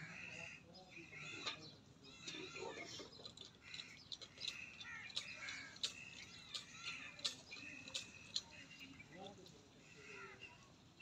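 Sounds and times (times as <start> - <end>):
birds chirping: 0.0 - 11.0
sharp click-like bird calls: 3.3 - 8.7.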